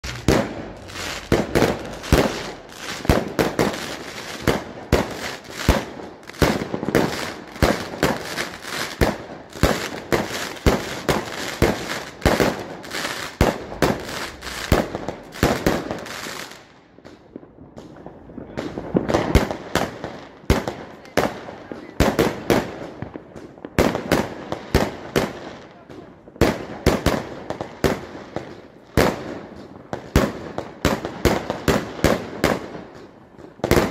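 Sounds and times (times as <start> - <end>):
fireworks bangs and pops: 0.0 - 33.9.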